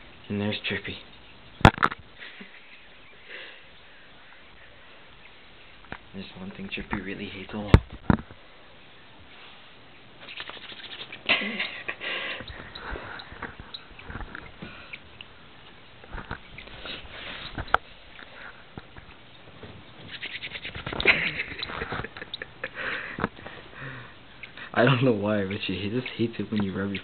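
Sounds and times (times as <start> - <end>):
bird calling: 9.8 - 17.8, 19.0 - 24.8
hands rubbing together: 10.2 - 11.3, 20.0 - 22.2.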